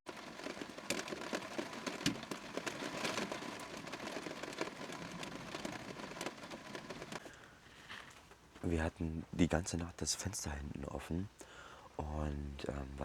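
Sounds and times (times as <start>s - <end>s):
steady rain: 0.1s - 7.4s.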